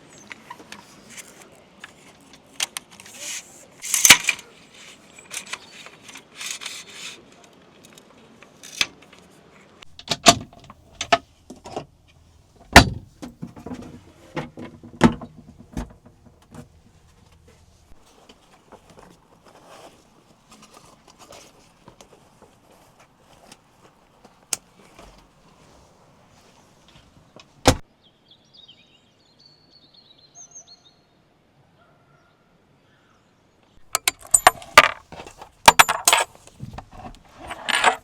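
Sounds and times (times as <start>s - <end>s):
camping gear knocking and clanking: 0.2s - 7.0s, 9.8s - 25.5s, 33.8s - 38.0s
gear rustling: 0.3s - 7.3s, 33.8s - 38.0s.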